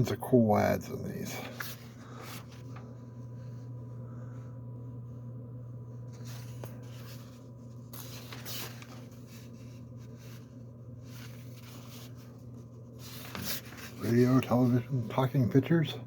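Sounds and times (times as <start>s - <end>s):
steady low hum: 0.0s - 16.0s
magazine pages rustling: 1.3s - 3.8s, 6.0s - 15.4s.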